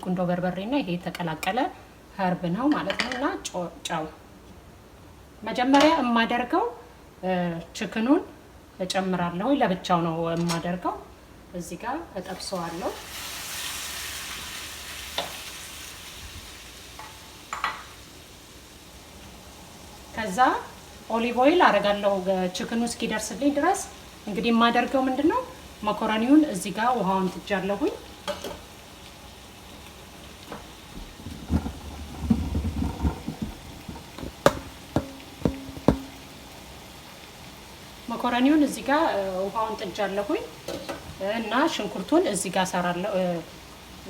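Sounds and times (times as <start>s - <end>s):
chicken sizzling in a pan: 12.2s - 44.0s
cookware clicks: 32.9s - 36.3s.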